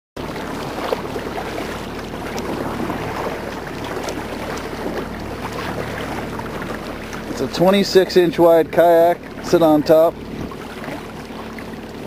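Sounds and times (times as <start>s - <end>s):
water splashing against kayak: 0.2s - 12.0s.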